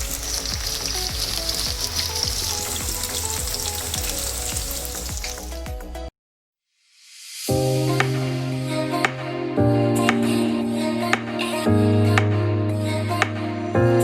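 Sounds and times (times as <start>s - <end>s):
chicken frying in hot oil: 0.0s - 5.5s.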